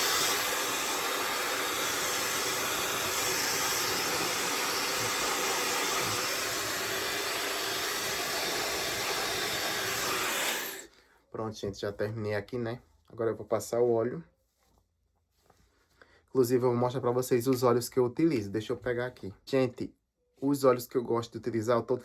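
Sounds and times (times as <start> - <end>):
hair dryer running: 0.0 - 10.8.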